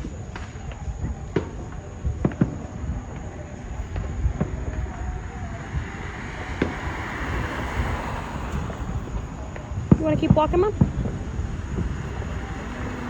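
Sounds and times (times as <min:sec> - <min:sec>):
low rumble: 0:00.0 - 0:13.0
vehicle tyre hiss: 0:02.6 - 0:13.0.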